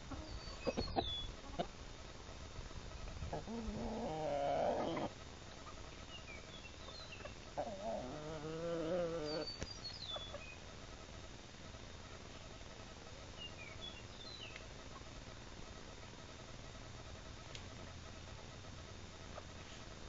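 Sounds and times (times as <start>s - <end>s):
small bird high chirps: 0.2s - 1.3s
roosters crowing: 3.3s - 5.2s, 7.0s - 9.5s.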